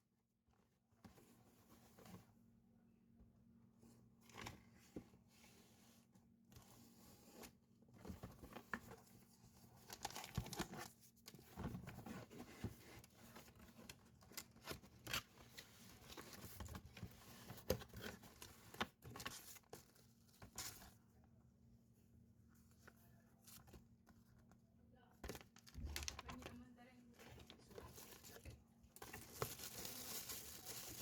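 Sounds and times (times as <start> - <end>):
packaging crinkling and tearing: 9.9 - 10.9, 29.0 - 31.0.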